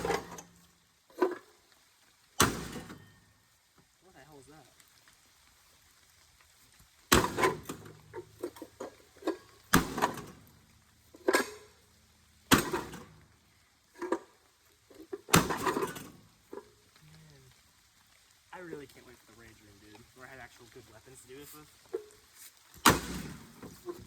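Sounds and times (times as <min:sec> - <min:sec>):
loose parts rattling: 0:00.0 - 0:00.5, 0:07.2 - 0:10.4, 0:11.1 - 0:11.8.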